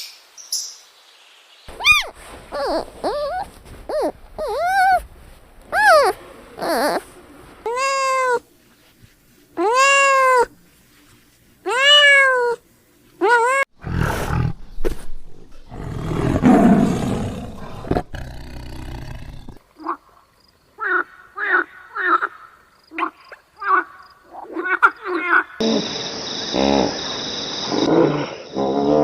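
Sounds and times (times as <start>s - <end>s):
animal cries rising and falling: 1.7s - 5.0s, 5.7s - 7.0s, 7.7s - 8.4s, 9.6s - 10.5s, 11.7s - 12.6s, 13.2s - 13.7s
short quick animal calls: 1.7s - 5.0s
rough noisy animal roar: 15.7s - 19.6s.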